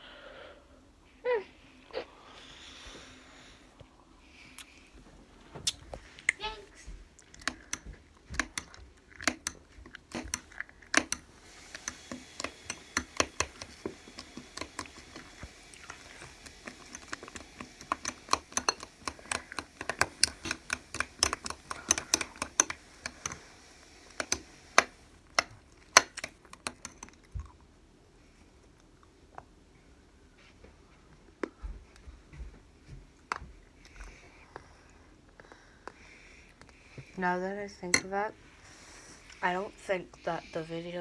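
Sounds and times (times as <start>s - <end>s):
sharp clicks and taps: 5.6s - 15.3s, 16.9s - 23.4s.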